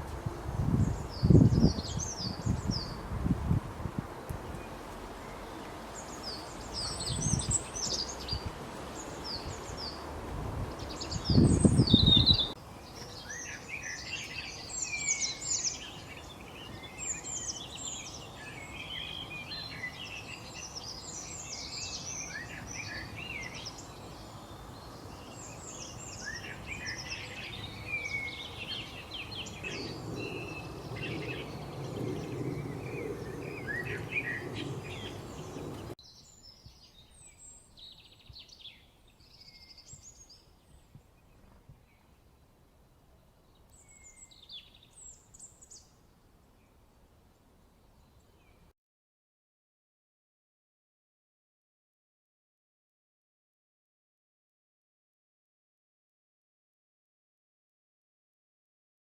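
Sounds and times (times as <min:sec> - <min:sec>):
bird chirping and singing: 0:00.6 - 0:03.0, 0:05.2 - 0:08.4, 0:10.7 - 0:42.0.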